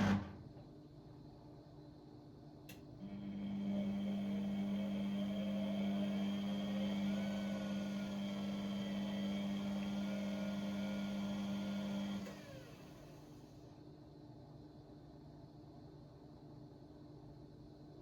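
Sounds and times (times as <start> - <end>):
pump motor humming: 3.0 - 13.3.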